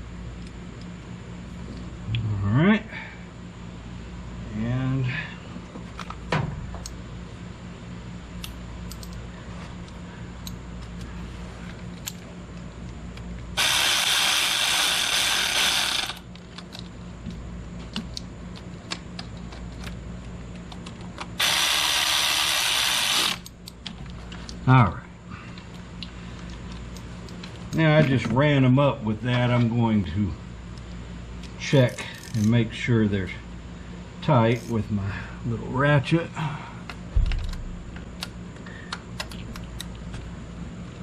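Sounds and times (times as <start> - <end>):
cordless driver running screws: 13.6 - 16.2, 21.4 - 23.5.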